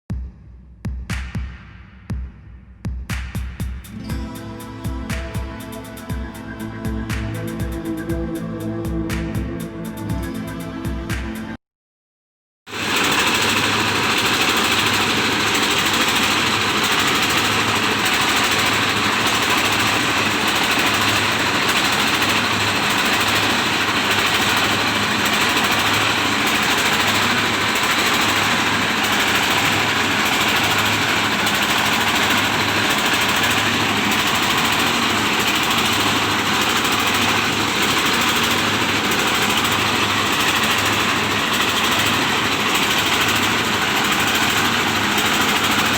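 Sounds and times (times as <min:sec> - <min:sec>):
milling machine clatter and hum: 0:12.7 - 0:45.9.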